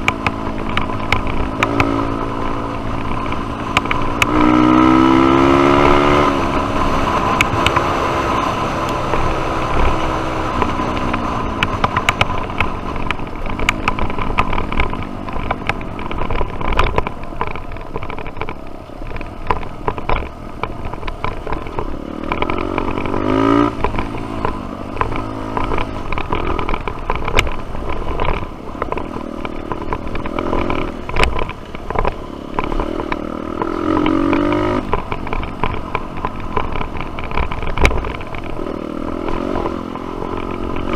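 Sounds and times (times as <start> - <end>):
dirt bike engine revving: 0.0 - 12.8, 21.5 - 40.9
bike clattering over rough ground: 9.0 - 40.9.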